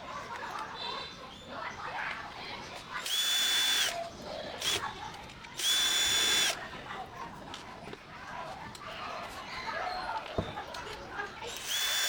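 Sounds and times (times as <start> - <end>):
power driver whining: 3.0 - 4.0, 5.6 - 6.6, 11.5 - 12.0.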